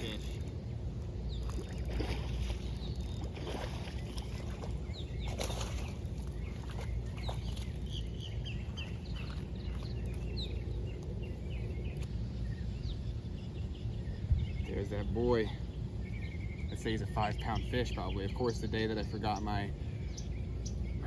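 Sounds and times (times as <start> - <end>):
birds chirping: 0.0 - 21.0
steady low rumble: 0.0 - 21.0
fish thrashing and splashing: 1.4 - 10.2.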